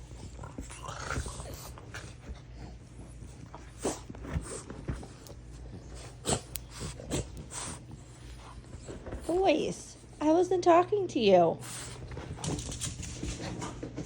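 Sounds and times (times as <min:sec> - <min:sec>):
dogs snorting and snuffling: 0:00.0 - 0:10.2
steady low hum: 0:00.0 - 0:14.0.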